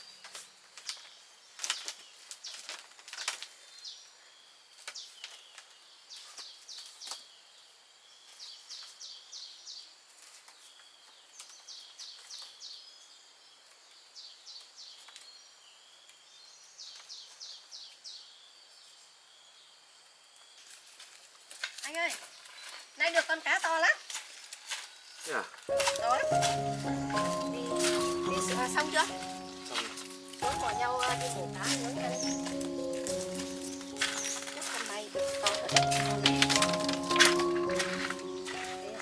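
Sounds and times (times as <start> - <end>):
faint high insect hum: 3.6 - 23.6.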